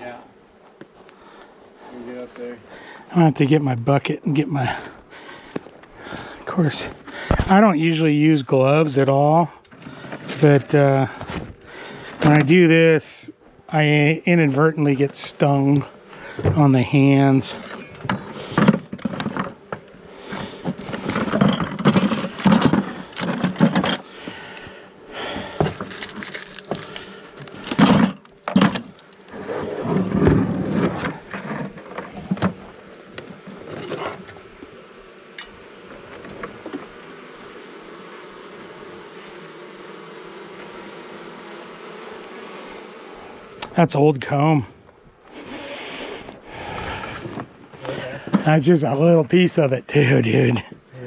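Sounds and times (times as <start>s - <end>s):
honey bees buzzing: 0.0s - 51.0s
tools and boards clattering: 17.6s - 19.9s, 20.6s - 24.0s, 27.7s - 29.0s.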